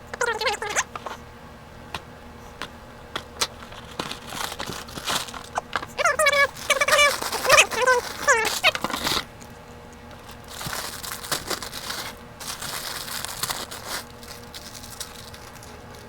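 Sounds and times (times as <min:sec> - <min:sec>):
plastic packaging crinkling: 0:03.2 - 0:09.3, 0:10.1 - 0:16.0.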